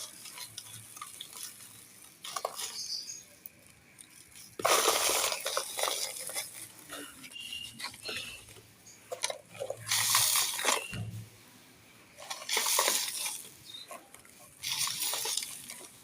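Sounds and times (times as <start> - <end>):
small crackling clicks: 0.0 - 11.1
dry clay crunching: 0.0 - 11.2, 12.1 - 16.0.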